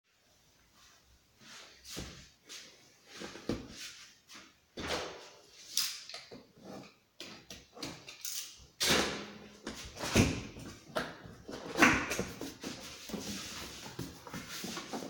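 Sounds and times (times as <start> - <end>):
packaging rustling and scraping: 12.3 - 15.0.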